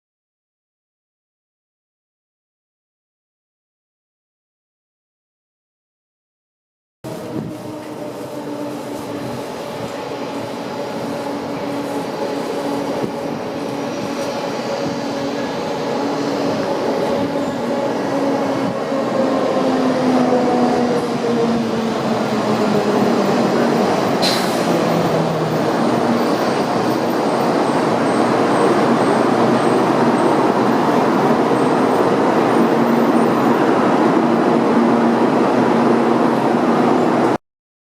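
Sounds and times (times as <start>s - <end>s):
train wheel and rail noise: 7.0s - 37.4s.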